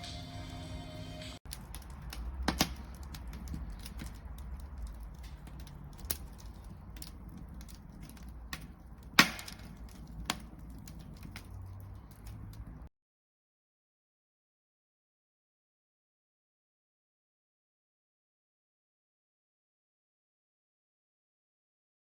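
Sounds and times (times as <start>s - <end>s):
wood fire crackling: 0.0s - 12.9s
fire popping: 1.4s - 12.9s.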